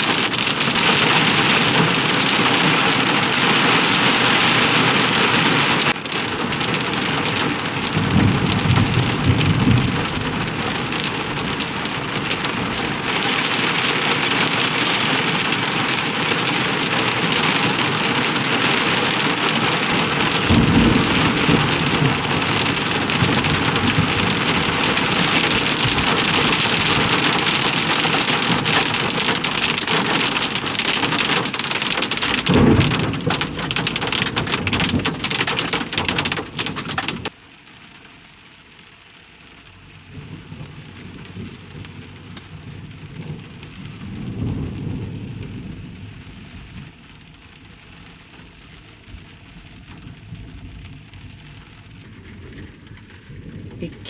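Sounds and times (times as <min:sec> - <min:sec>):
thunder rumbling: 0:00.0 - 0:37.3, 0:39.7 - 0:54.0
heavy rain pelting: 0:00.0 - 0:54.0.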